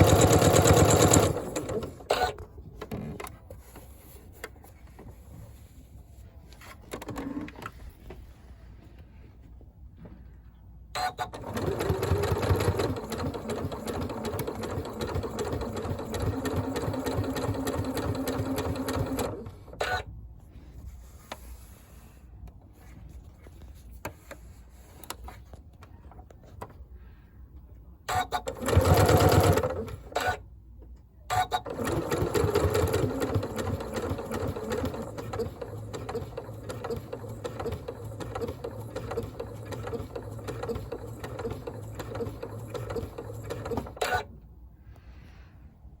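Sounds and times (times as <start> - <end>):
sewing machine stitching: 0.0 - 2.4, 11.0 - 20.0, 28.1 - 30.4, 31.3 - 44.3.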